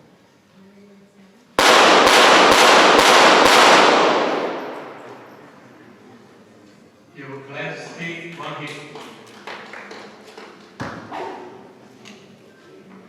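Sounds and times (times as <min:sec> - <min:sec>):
rapid pistol shots: 0:01.6 - 0:05.6
gunshot echo: 0:01.6 - 0:05.7.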